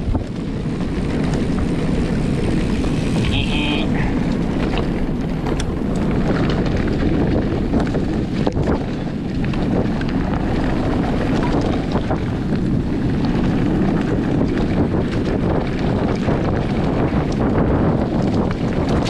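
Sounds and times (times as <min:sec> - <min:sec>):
wind buffeting microphone: 0:00.0 - 0:19.0
light clicks and rattles: 0:04.7 - 0:06.4.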